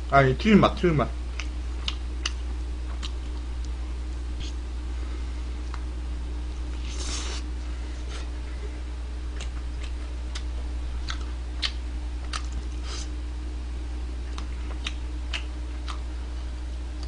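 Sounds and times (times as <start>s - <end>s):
steady low hum: 0.0s - 17.0s
wet chewing smacks: 1.4s - 3.8s, 9.3s - 13.1s, 14.3s - 16.1s.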